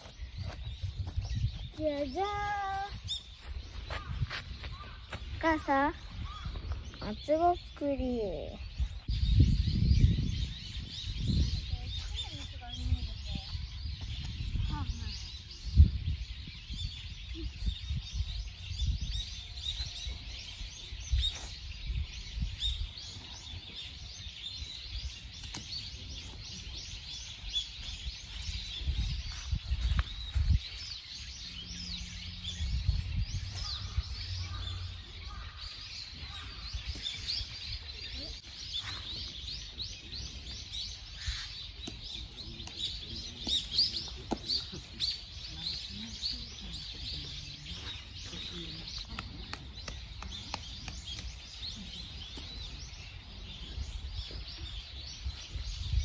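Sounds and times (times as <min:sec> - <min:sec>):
small birds chirping chorus: 0:00.0 - 0:56.0
low rumble: 0:29.8 - 0:36.8.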